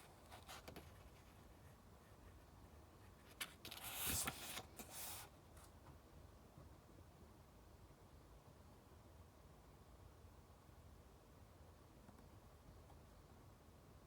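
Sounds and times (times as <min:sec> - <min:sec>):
book page turning: 0:03.3 - 0:05.2.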